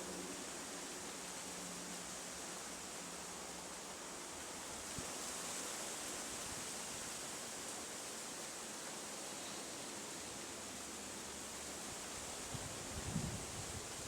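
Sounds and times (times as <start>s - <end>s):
outdoor ambience hiss: 0.0s - 14.0s.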